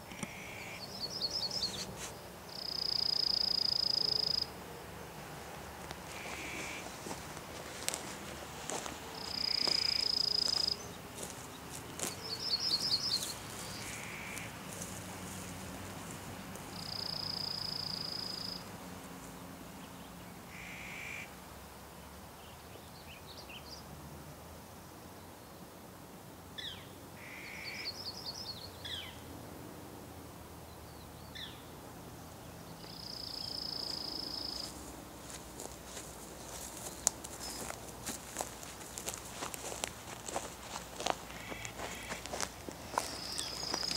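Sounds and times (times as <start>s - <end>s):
rapid bird trills: 6.1s - 7.0s, 9.2s - 10.9s, 12.0s - 14.5s, 41.0s - 43.9s.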